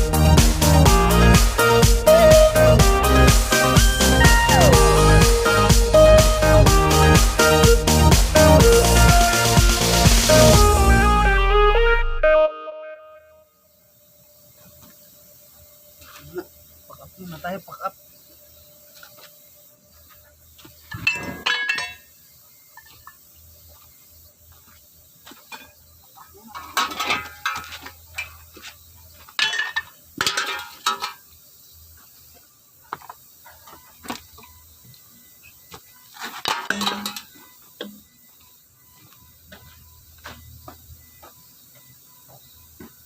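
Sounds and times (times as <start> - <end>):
metal tools clinking: 20.9 - 22.1, 26.5 - 28.4, 29.4 - 31.2, 36.2 - 38.0.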